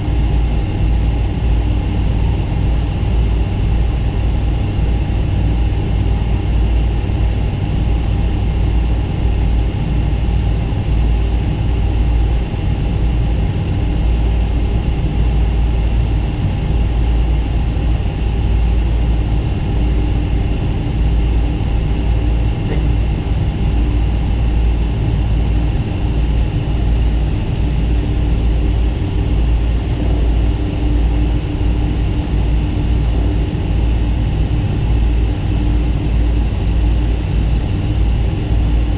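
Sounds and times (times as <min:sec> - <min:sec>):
jet engines rumbling in cabin: 0:00.0 - 0:38.9.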